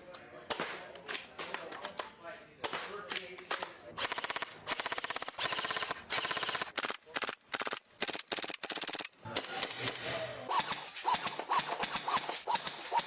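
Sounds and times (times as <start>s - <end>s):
airsoft gun firing bursts: 2.6s - 13.0s.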